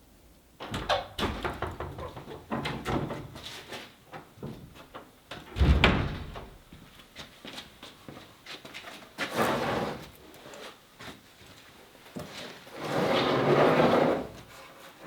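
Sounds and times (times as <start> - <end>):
heavy thump: 5.6 - 6.5.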